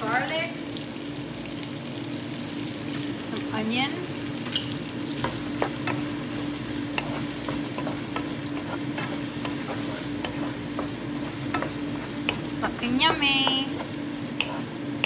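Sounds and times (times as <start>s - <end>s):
food sizzling in hot oil: 0.0s - 15.0s
wooden spoon stirring: 5.2s - 15.0s.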